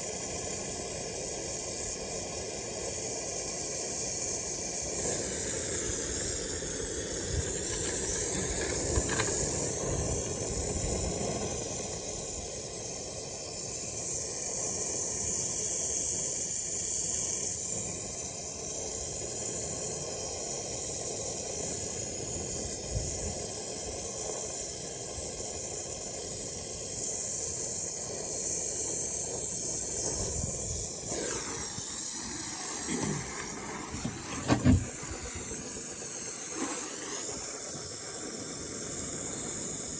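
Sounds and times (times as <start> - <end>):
torch flame hissing: 0.0 - 39.9
short knock: 32.9 - 35.2.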